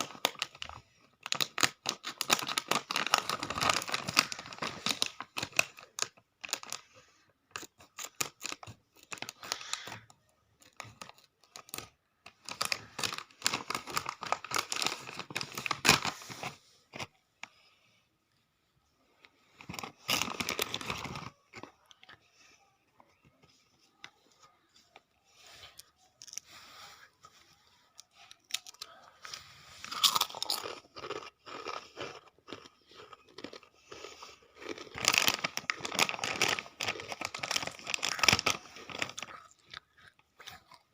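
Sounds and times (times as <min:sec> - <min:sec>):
potato chips crunching: 0:00.0 - 0:06.9, 0:07.6 - 0:16.2, 0:28.0 - 0:40.9.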